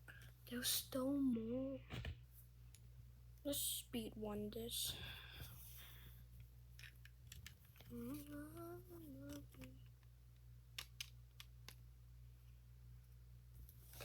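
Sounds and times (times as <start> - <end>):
plastic bricks clicking together: 6.8 - 8.3, 10.8 - 11.8
person humming a tune: 7.9 - 9.8.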